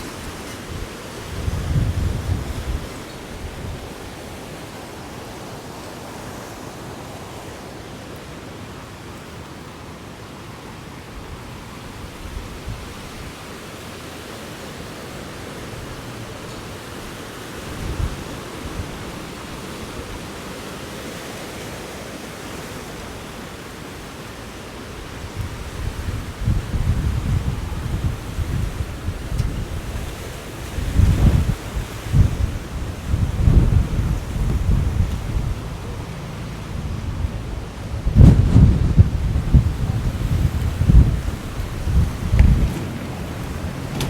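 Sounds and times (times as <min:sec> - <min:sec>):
wind buffeting microphone: 0:00.0 - 0:04.2, 0:17.6 - 0:19.6, 0:24.9 - 0:44.0
strong wind blowing: 0:00.0 - 0:05.0, 0:24.9 - 0:44.0.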